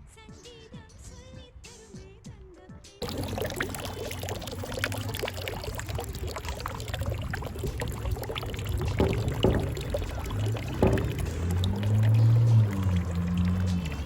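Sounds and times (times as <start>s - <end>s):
low rumble: 3.0s - 14.0s
running water splashing: 3.0s - 14.0s.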